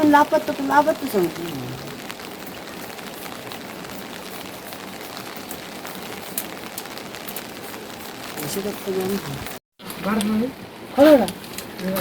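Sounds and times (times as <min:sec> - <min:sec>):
sharp water drips: 0:00.0 - 0:12.0
steady rain falling: 0:00.0 - 0:12.0.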